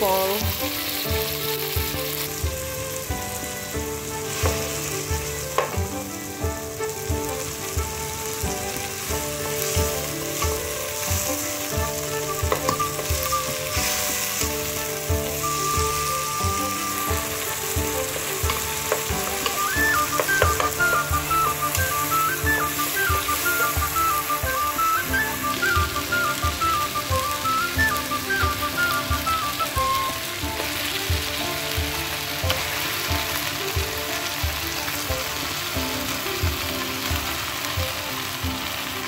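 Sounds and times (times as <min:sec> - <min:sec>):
background music with steady beat: 0:00.0 - 0:39.0
vegetables sizzling in hot oil: 0:00.0 - 0:39.0
wooden spatula stirring: 0:00.5 - 0:25.1.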